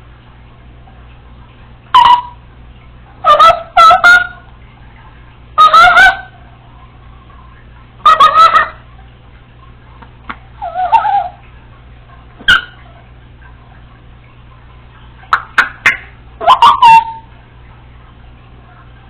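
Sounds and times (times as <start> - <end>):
parrot loud calls: 2.0 - 2.4, 3.2 - 4.4, 5.6 - 6.4, 8.0 - 8.8, 10.6 - 11.4, 12.4 - 13.0, 15.6 - 17.3.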